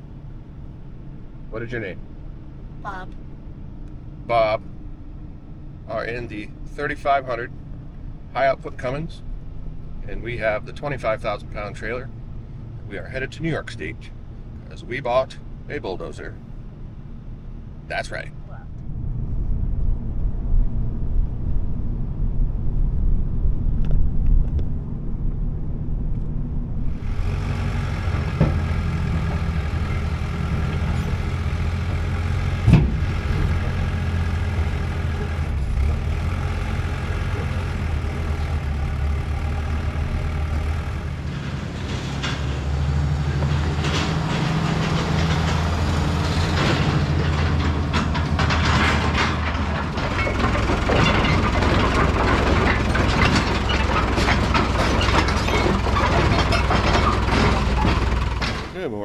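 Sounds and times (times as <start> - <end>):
diesel engine running: 0.0 - 58.9
low vehicle rumble on road: 0.0 - 59.0
rattling clatter: 26.8 - 42.5, 43.4 - 58.8.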